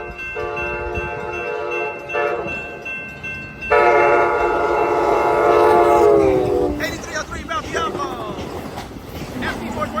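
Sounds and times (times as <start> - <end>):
train horn blasts: 0.3 - 2.7, 3.7 - 6.8.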